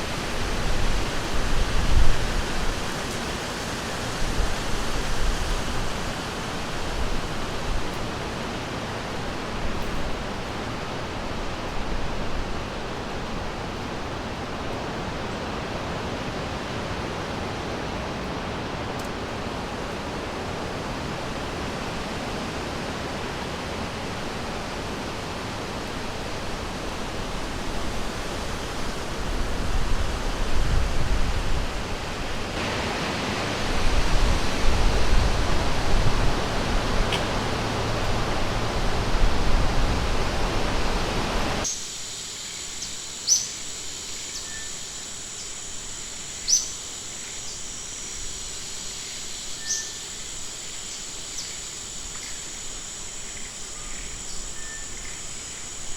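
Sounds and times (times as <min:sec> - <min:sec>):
river water rushing: 0:00.0 - 0:41.7.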